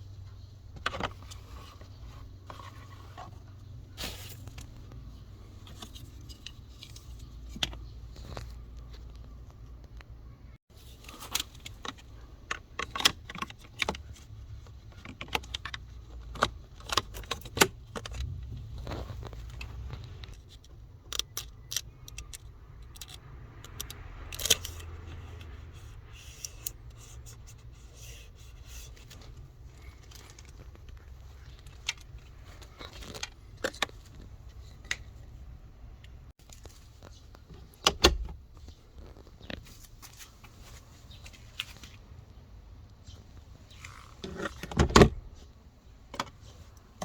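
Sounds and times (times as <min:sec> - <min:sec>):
plastic parts clicking and knocking: 0:00.2 - 0:03.6, 0:04.4 - 0:10.2, 0:11.0 - 0:40.0, 0:43.7 - 0:47.0
plastic scraping: 0:43.7 - 0:45.5.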